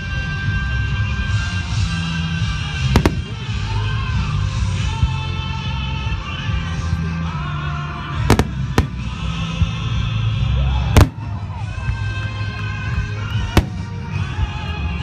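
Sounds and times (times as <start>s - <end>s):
music: 0.0s - 15.0s
firework shells bursting: 2.9s - 3.8s, 8.3s - 9.4s.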